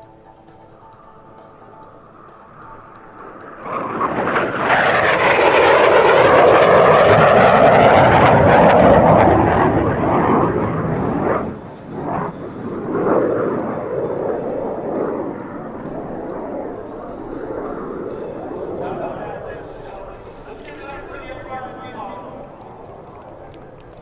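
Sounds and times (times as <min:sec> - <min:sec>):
jet flying by low: 0:00.0 - 0:24.0.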